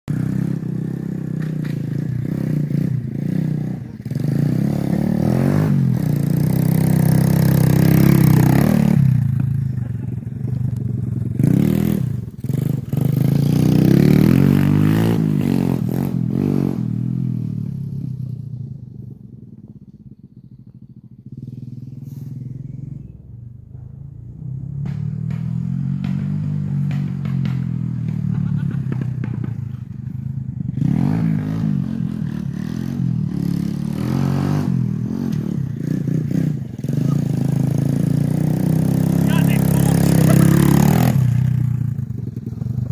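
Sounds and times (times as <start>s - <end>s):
motorbike engine revving: 0.1s - 42.9s.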